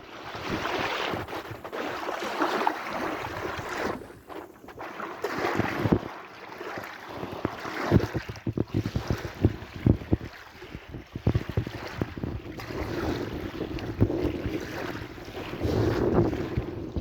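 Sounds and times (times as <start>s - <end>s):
sea waves washing in: 0.0s - 17.0s
wind buffeting microphone: 7.2s - 17.0s.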